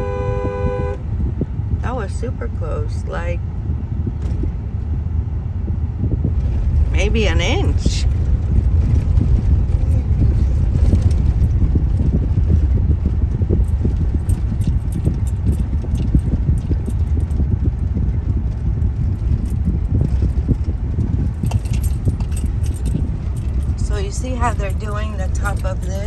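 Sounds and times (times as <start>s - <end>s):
car engine and tyre rumble: 0.0s - 26.0s
clicks and rattles: 7.4s - 12.7s, 13.6s - 26.0s.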